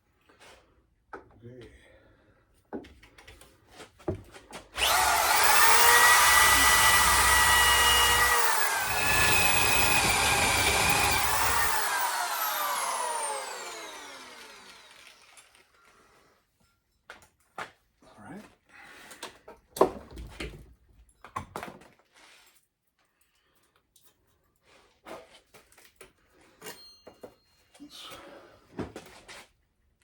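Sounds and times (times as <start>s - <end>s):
electric drill whine: 4.8s - 15.6s.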